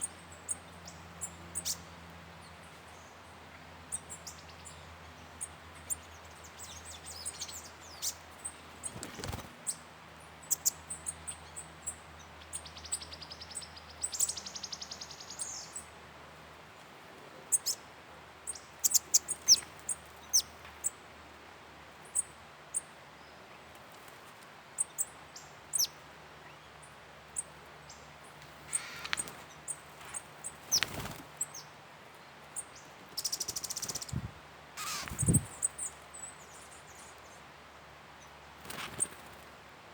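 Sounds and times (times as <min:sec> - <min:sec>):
birds chirping: 0:00.0 - 0:15.9, 0:24.8 - 0:37.4
harsh rasping bird call: 0:28.7 - 0:29.2, 0:34.8 - 0:35.3
fast buzzy bird trill: 0:34.8 - 0:36.0.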